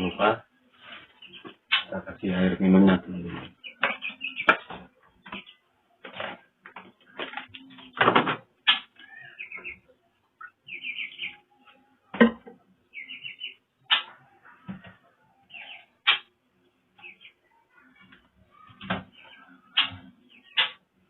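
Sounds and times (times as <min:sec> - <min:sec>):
bird harsh chattering calls: 0:01.2 - 0:02.0, 0:03.6 - 0:04.7, 0:08.6 - 0:09.8, 0:10.4 - 0:11.4, 0:15.5 - 0:16.3, 0:18.6 - 0:20.8.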